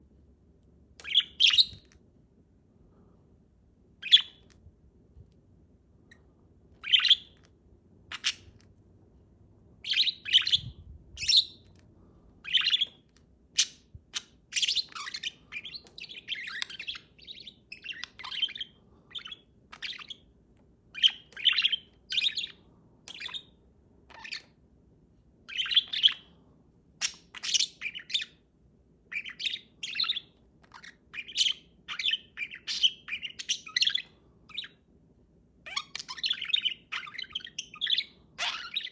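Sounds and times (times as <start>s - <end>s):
parakeet chirping and chattering: 1.0s - 2.0s, 4.0s - 4.6s, 6.1s - 8.7s, 9.8s - 11.8s, 12.4s - 20.3s, 20.9s - 24.6s, 25.5s - 26.3s, 27.0s - 28.4s, 29.1s - 34.8s, 35.6s - 38.9s.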